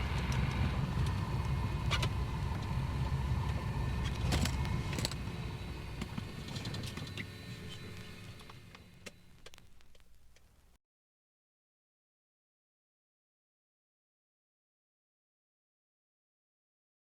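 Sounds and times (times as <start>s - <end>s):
vehicle engine rumbling: 0.0s - 10.8s.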